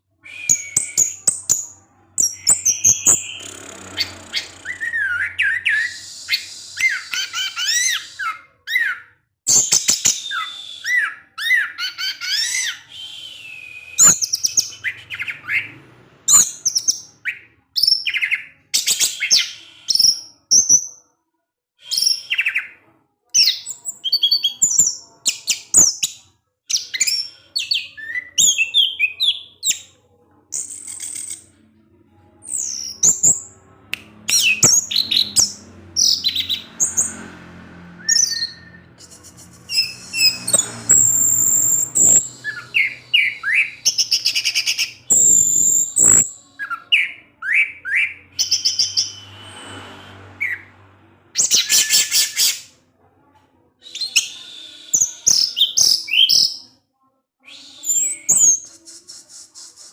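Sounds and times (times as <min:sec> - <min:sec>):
thrush singing chirps and whistles: 0:00.2 - 0:01.6, 0:02.2 - 0:15.7, 0:38.0 - 0:50.6, 0:57.5 - 0:59.7.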